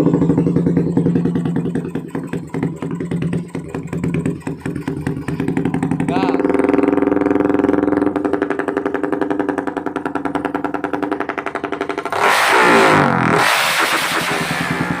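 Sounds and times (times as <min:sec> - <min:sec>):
motorcycle engine idling: 0:00.0 - 0:12.3, 0:14.1 - 0:15.0.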